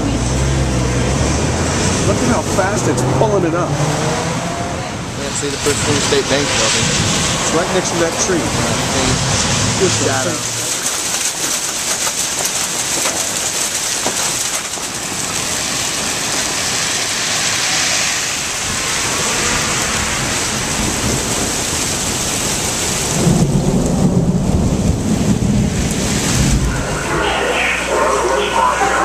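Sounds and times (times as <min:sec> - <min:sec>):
heavy rain pouring: 0:00.0 - 0:29.0
low rumble of thunder: 0:18.6 - 0:27.4.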